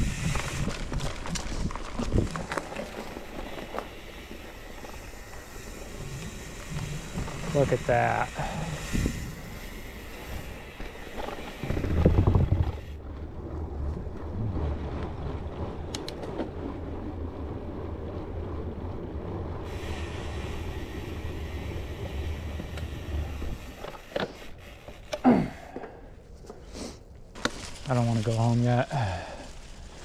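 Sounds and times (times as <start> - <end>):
wind rumble on microphone: 0.0 - 10.7, 11.5 - 23.8
bike tyre and rattle noise: 0.0 - 30.0.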